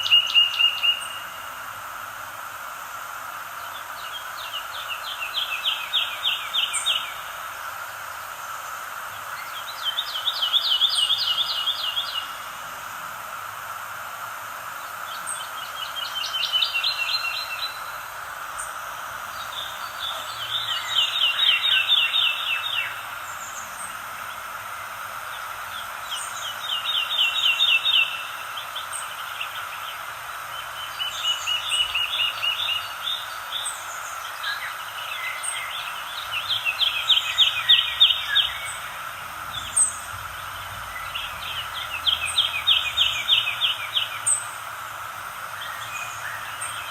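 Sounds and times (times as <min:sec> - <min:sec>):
songbird trilling: 0:00.0 - 0:01.3, 0:09.3 - 0:12.4, 0:15.0 - 0:24.4, 0:25.7 - 0:29.9, 0:30.5 - 0:44.6
background hiss: 0:00.0 - 0:46.9.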